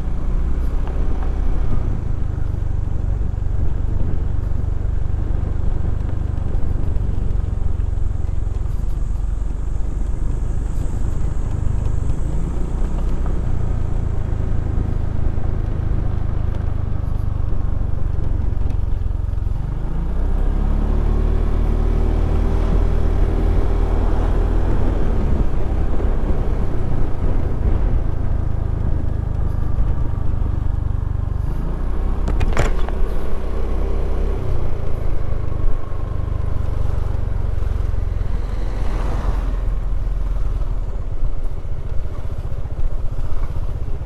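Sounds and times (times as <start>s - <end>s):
motorcycle engine running: 0.0s - 44.0s
wind and road rumble: 0.0s - 44.0s.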